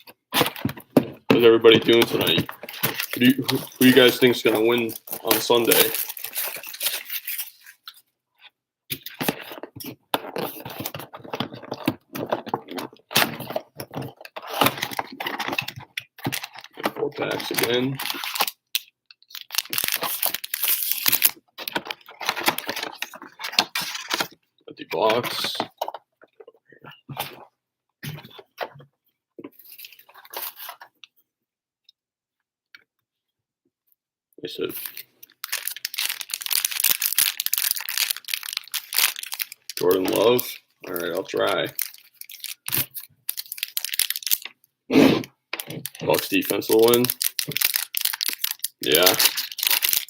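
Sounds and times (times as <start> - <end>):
packaging crinkling and tearing: 0.3 - 8.1, 8.9 - 24.4, 29.6 - 30.9, 34.6 - 44.6, 45.5 - 50.0.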